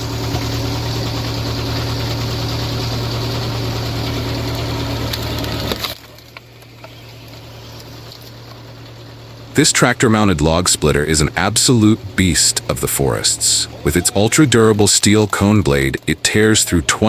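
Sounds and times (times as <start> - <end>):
wood being shredded: 0.0 - 17.0
wood chipper engine: 0.0 - 17.0.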